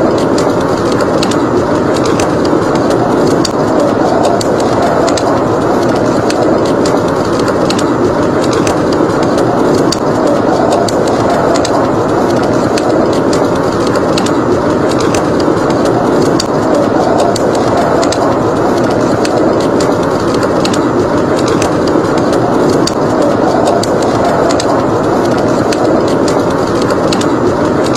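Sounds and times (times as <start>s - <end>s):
rushing blizzard wind: 0.0s - 27.9s
wood fire crackling: 0.0s - 27.9s.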